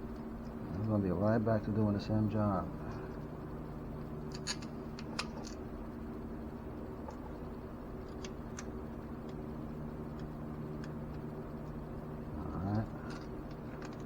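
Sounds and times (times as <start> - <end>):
steady low hum: 0.0 - 14.0
metal parts and tools clicking: 4.3 - 5.6, 13.1 - 14.0.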